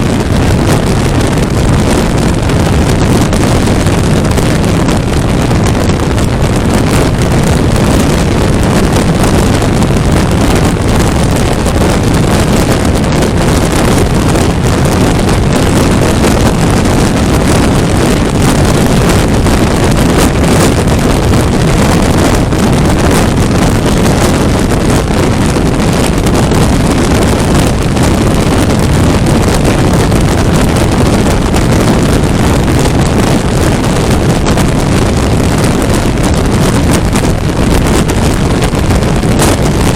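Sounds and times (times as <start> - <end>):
wind rush on microphone: 0.0 - 39.9.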